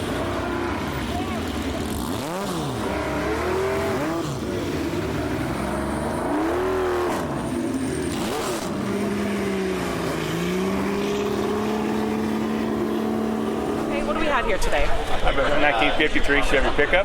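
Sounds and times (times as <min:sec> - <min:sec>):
car engine revving: 0:00.0 - 0:15.2.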